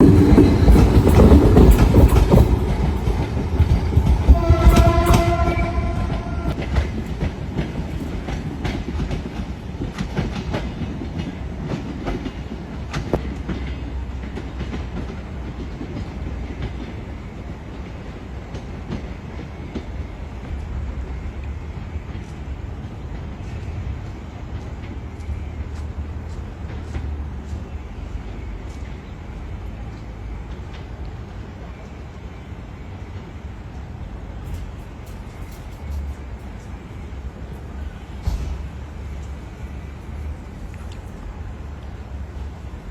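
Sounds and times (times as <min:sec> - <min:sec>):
wheels clicking over rail joints: 0:00.0 - 0:17.0, 0:34.2 - 0:42.9
train wheels rumbling: 0:00.0 - 0:42.9
train horn: 0:04.3 - 0:06.6.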